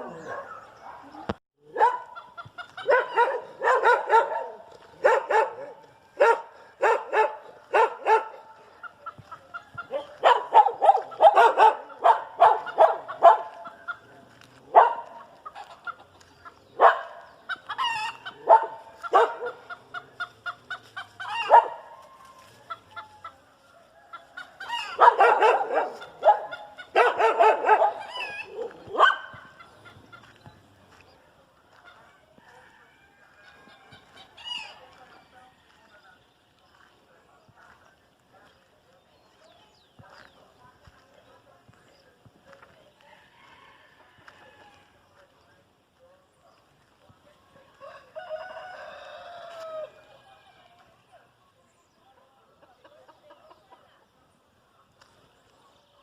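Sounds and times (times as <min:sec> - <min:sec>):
dogs barking: 0:00.0 - 0:22.2, 0:24.1 - 0:30.3
chickens clucking: 0:00.0 - 0:56.0.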